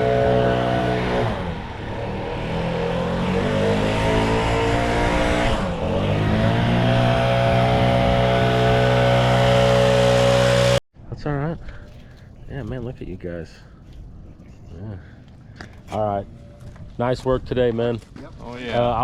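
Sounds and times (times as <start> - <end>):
engine running: 0.0 - 10.8.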